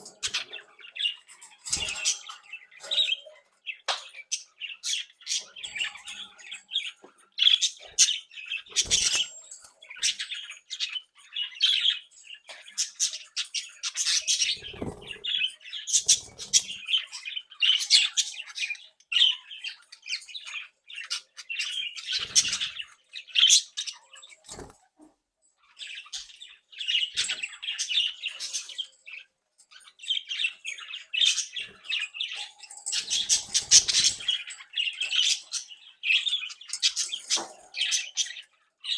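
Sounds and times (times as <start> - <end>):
budgies chattering: 0.0 - 38.9.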